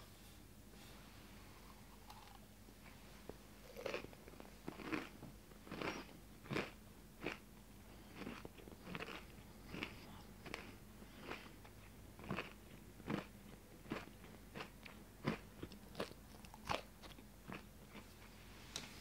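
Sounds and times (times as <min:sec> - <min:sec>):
crunchy scone chewing: 0:03.7 - 0:18.3.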